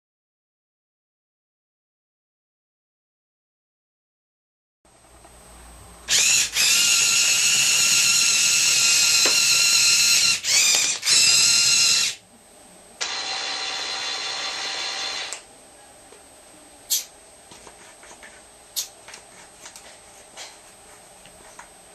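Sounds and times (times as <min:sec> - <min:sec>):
small electric motors whining: 0:06.1 - 0:12.2, 0:13.0 - 0:15.4.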